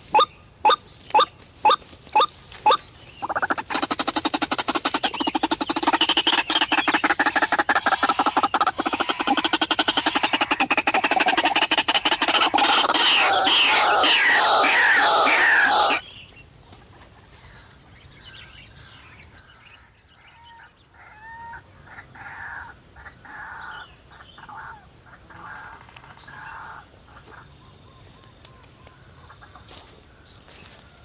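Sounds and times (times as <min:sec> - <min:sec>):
waterhen harsh calls: 0:00.1 - 0:16.0.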